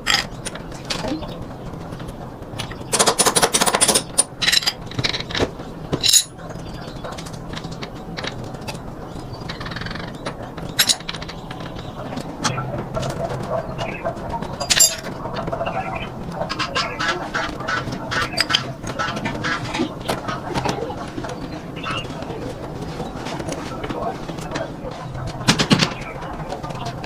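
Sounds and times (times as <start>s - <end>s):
metal tools clinking: 2.9s - 5.4s, 6.0s - 6.4s, 10.8s - 11.2s, 14.6s - 15.1s.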